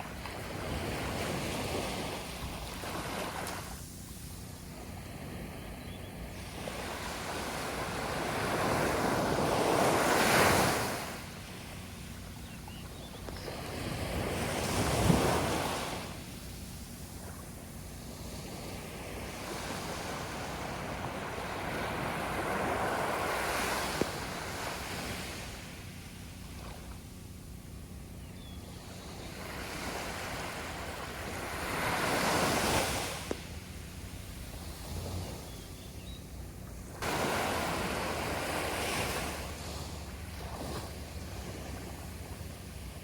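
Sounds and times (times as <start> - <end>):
sea waves breaking on beach: 0.0 - 3.9, 4.7 - 12.3, 13.4 - 27.0, 28.7 - 35.7, 36.8 - 43.0.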